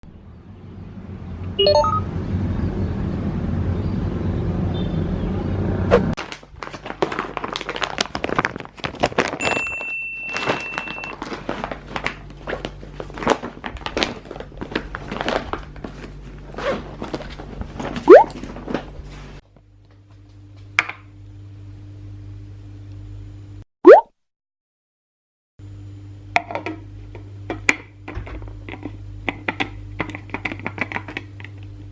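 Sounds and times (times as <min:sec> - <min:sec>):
short steady beep: 0:01.6 - 0:02.0.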